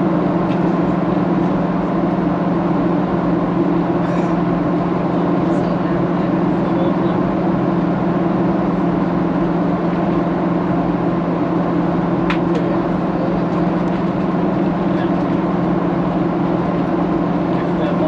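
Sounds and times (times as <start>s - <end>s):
airplane cabin drone: 0.0s - 18.0s.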